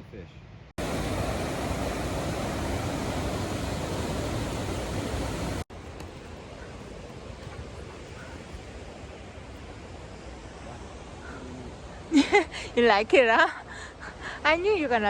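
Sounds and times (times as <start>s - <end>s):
river water rushing: 0.8s - 11.2s.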